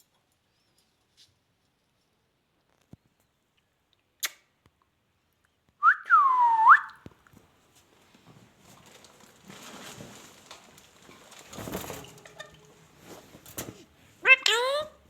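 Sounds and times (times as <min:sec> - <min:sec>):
faint rustling: 0:07.3 - 0:14.3.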